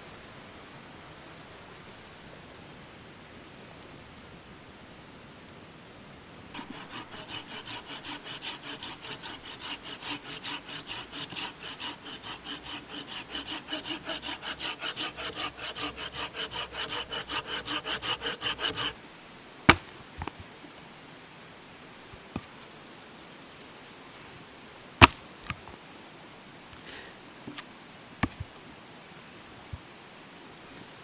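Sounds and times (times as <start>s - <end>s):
hand saw cutting wood: 6.6s - 19.0s
sharp crack: 19.7s - 20.3s.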